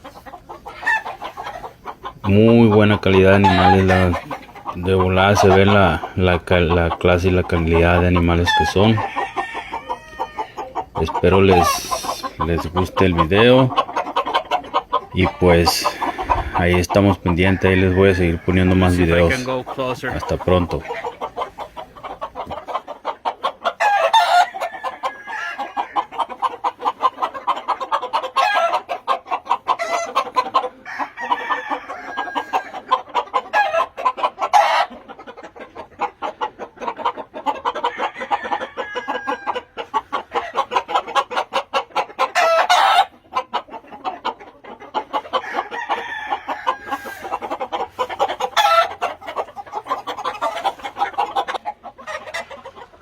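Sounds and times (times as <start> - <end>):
chickens clucking: 0.0 - 53.0
roosters crowing: 0.0 - 53.0.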